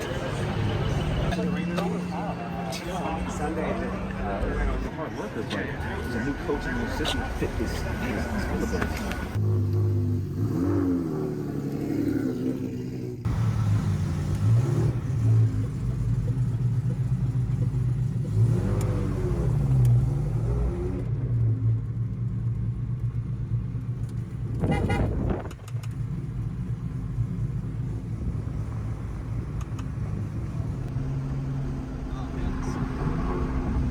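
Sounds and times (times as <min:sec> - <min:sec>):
car engines running: 0:00.0 - 0:33.9
engine revs: 0:07.6 - 0:21.7.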